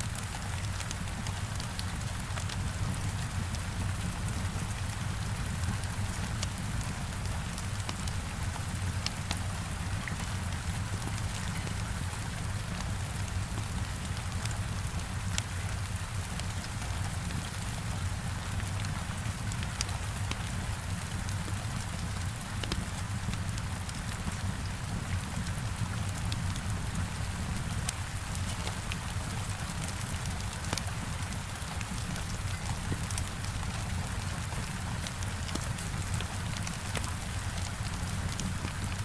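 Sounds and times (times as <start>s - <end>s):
heavy rain hitting a window: 0.0s - 39.0s
wood fire crackling: 19.2s - 39.0s.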